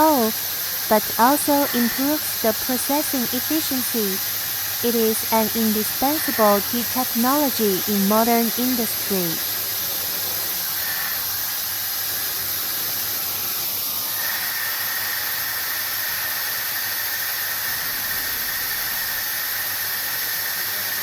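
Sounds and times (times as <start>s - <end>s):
milling machine hissing: 0.0s - 7.6s, 9.3s - 21.0s.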